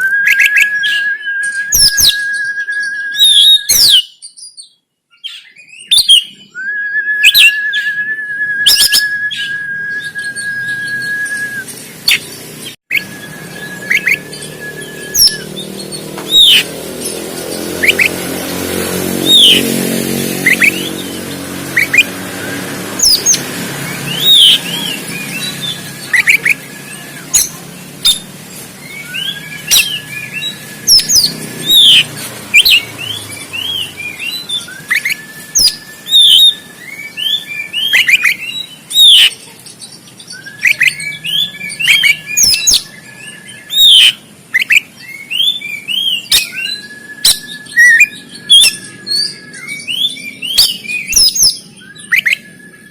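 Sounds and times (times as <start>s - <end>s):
bird chirping and whistling: 0.0s - 52.9s
low engine hum: 11.3s - 36.8s.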